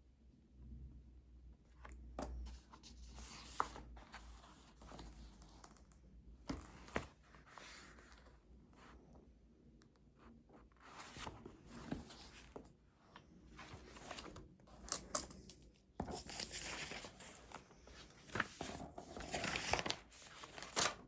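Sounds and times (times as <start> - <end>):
paper rustling and sliding: 2.5 - 5.5, 6.5 - 8.9, 10.8 - 12.7, 13.5 - 15.0, 16.0 - 21.0.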